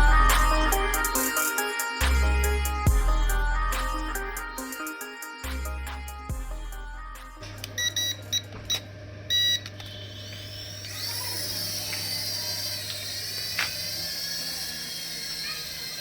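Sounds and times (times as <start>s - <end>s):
short electronic beeps: 7.8s - 10.2s
high wavering whine: 9.4s - 16.0s.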